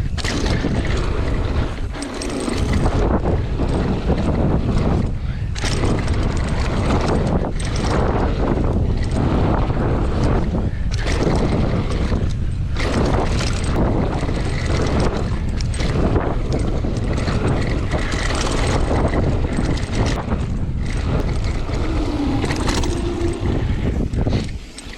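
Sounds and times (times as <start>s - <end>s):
bike rattling over rough ground: 0.0s - 24.9s
bike tyre noise: 0.0s - 24.9s
wind buffeting microphone: 0.0s - 24.9s.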